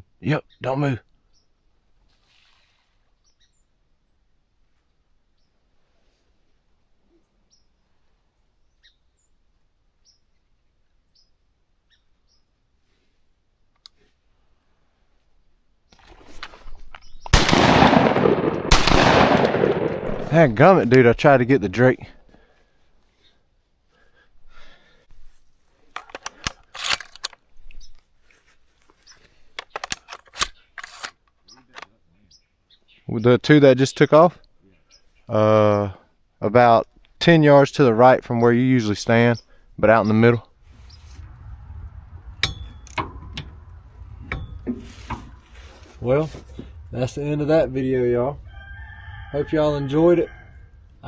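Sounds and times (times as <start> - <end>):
faint high bird chirps: 8.6 - 9.4
rustling crunching sounds: 25.1 - 31.2, 44.6 - 47.7.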